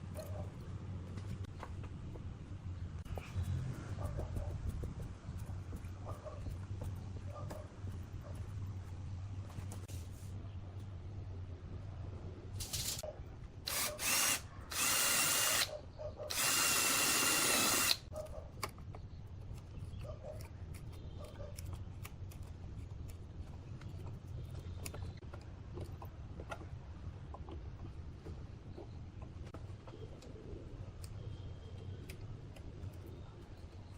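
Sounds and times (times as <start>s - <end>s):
power drill running: 13.7s - 15.7s, 16.3s - 18.0s.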